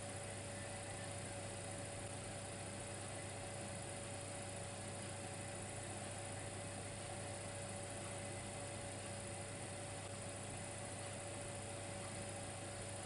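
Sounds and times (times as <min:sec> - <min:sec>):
constant hiss: 0:00.0 - 0:13.0
electric fireplace humming: 0:00.0 - 0:13.0.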